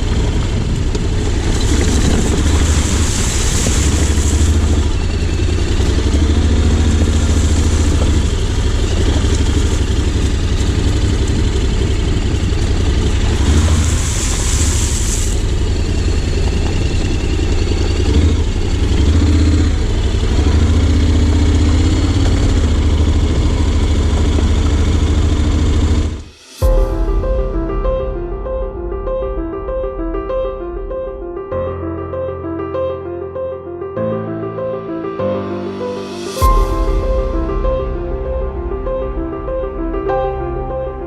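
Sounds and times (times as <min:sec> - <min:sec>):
motorcycle engine running: 0:00.0 - 0:26.9
rush of hiss: 0:13.4 - 0:15.5.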